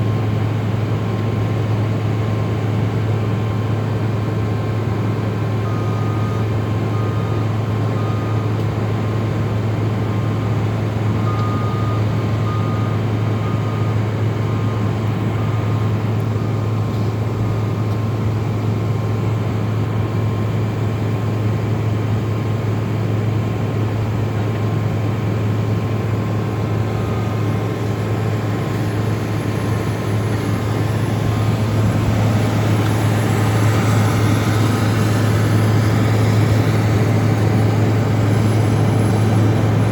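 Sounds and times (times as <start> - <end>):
heavy machine engines running: 0.0 - 39.9
reverse alarm beeping: 5.6 - 8.6, 11.2 - 14.8, 26.6 - 39.9.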